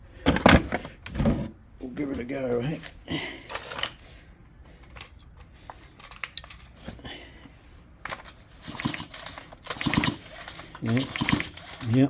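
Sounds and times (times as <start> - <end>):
chainsaw recoil starter clicks and rattles: 2.8 - 4.0, 4.9 - 6.8, 8.0 - 12.0.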